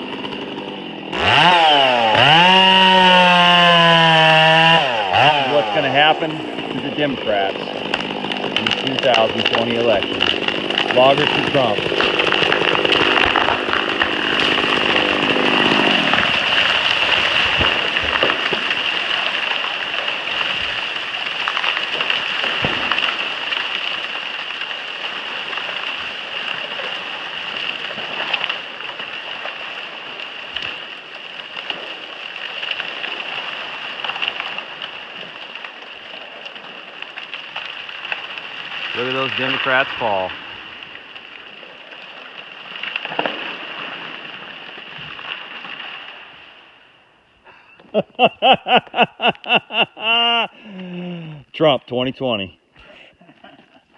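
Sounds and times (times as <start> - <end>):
chainsaw running: 0.0 - 30.9, 48.2 - 51.0
trees crashing down: 0.0 - 51.2
wood cracking: 0.0 - 51.3.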